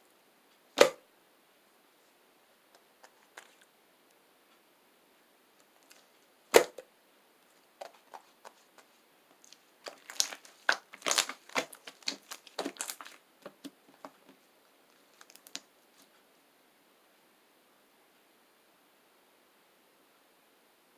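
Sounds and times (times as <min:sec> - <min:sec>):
slime popping: 0:09.4 - 0:13.2.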